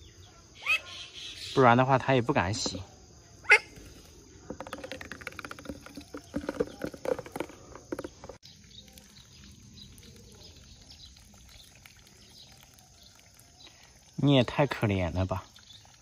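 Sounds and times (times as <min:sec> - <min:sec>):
pattering and splashing: 0:04.0 - 0:16.0.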